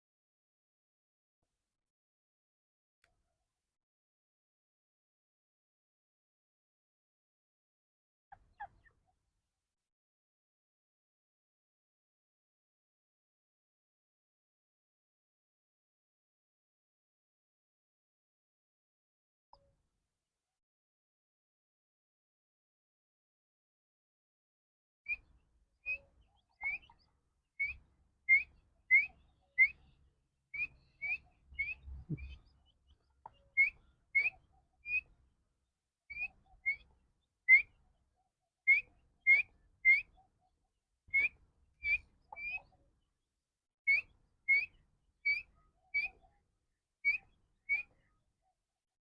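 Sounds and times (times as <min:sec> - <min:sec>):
chick peeping: 0:31.0 - 0:32.4.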